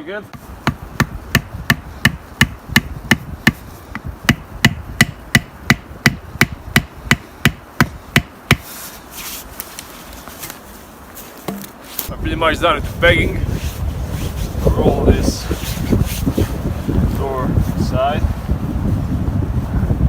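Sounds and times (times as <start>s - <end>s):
hammer striking tent peg: 0.6s - 8.7s.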